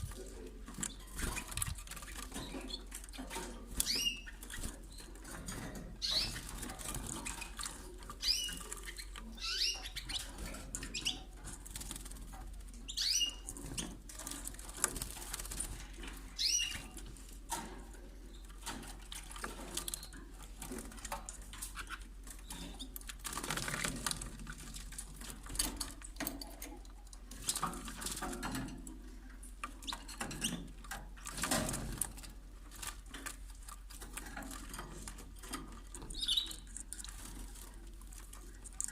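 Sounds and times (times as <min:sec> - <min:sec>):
bird chirping: 0:00.8 - 0:11.4, 0:12.7 - 0:13.9, 0:16.3 - 0:17.0, 0:36.0 - 0:37.1.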